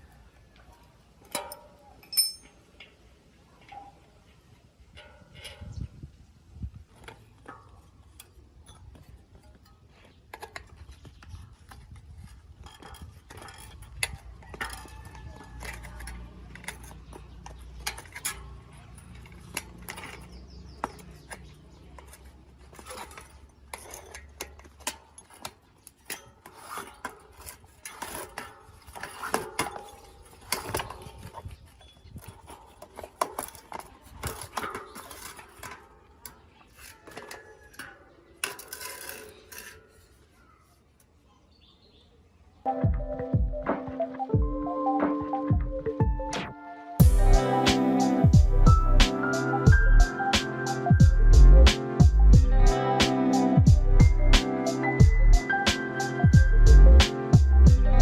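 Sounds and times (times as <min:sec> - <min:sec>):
metal bicycle parts and tools clinking: 0:00.0 - 0:42.0.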